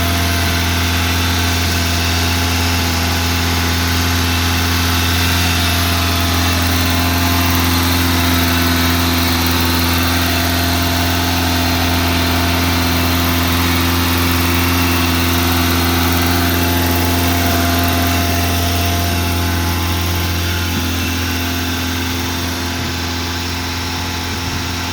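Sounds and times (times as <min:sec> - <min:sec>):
car engine high idle: 0:00.0 - 0:24.9.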